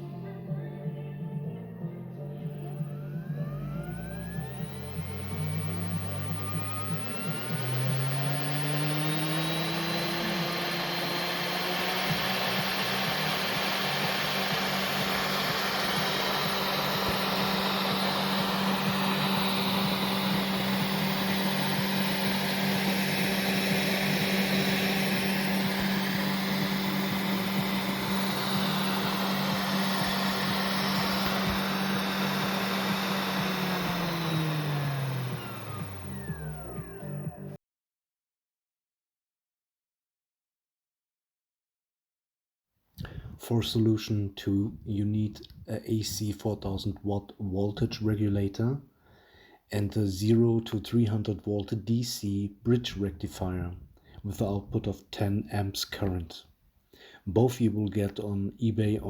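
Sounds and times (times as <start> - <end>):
spindle motor whining: 2.6 - 37.6.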